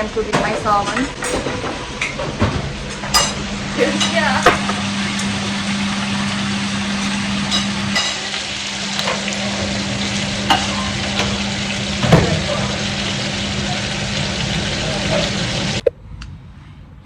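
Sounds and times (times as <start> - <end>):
low hum: 3.0 - 17.0
utensil clinking on pan: 3.2 - 8.3
fish sizzling in a pan: 3.2 - 15.8.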